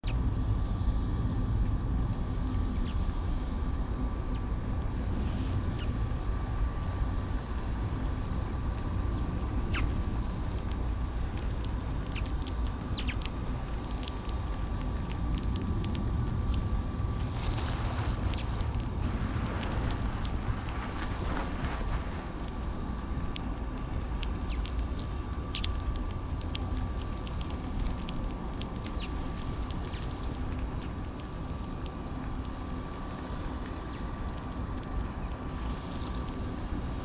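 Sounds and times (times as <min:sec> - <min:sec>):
faint steady whine: 0:00.0 - 0:37.0
steady low rumble: 0:00.0 - 0:37.0
birds chirping: 0:07.3 - 0:16.8, 0:18.1 - 0:18.9, 0:23.0 - 0:36.3.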